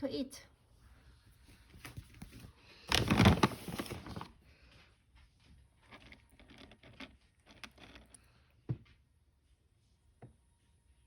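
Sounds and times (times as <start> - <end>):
cat crunching dry kibble: 5.7 - 8.4.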